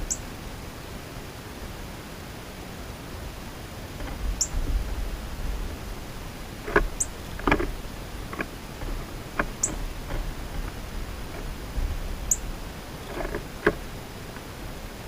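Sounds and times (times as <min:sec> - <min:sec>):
low outdoor rumble: 0:00.0 - 0:15.0
birds tapping at feeder: 0:03.9 - 0:14.6.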